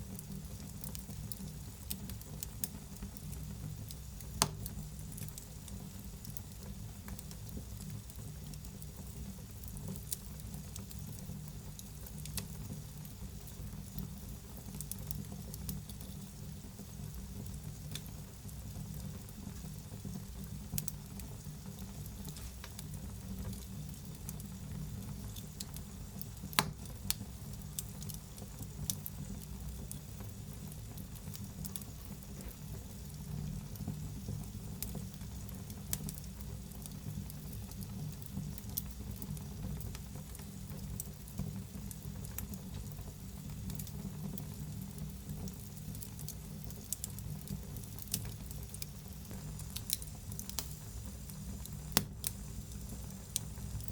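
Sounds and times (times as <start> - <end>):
low fire rumble: 0.0 - 53.9
wood fire crackling: 0.0 - 53.9
sharp pops from fire: 0.1 - 12.7, 20.5 - 30.0, 43.6 - 53.9.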